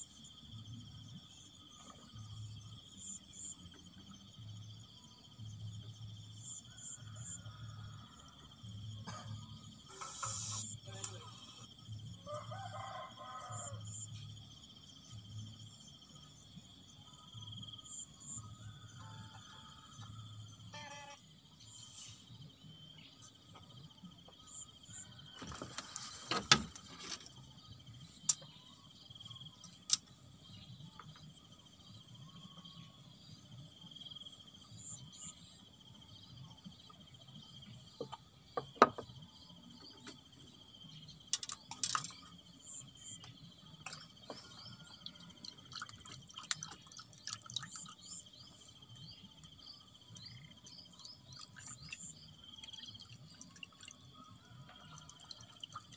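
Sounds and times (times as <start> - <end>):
water dripping: 44.6 - 48.2, 51.0 - 54.0, 54.8 - 55.9.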